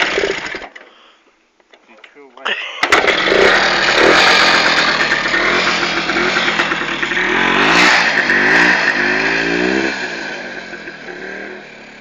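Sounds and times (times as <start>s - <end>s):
motorcycle engine revving: 0.0s - 0.6s, 2.9s - 12.0s.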